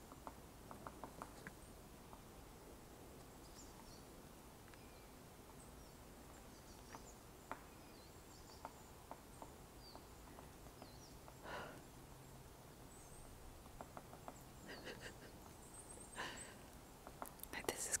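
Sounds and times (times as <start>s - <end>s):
small birds calling: 0.0s - 18.0s
sharp little ticks: 16.7s - 17.9s.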